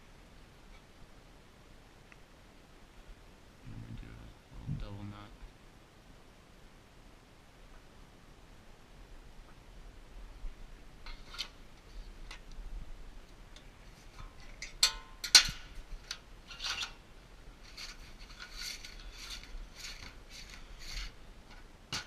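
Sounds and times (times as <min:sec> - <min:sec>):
rope rubbing through hands: 0:17.6 - 0:21.2.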